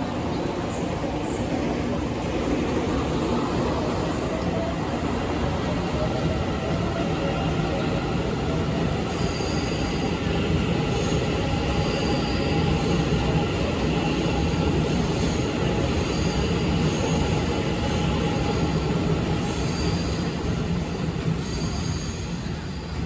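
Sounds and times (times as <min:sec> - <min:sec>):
train wheels rumbling on rail: 0:00.0 - 0:23.0
high wheel squeals: 0:19.2 - 0:22.6.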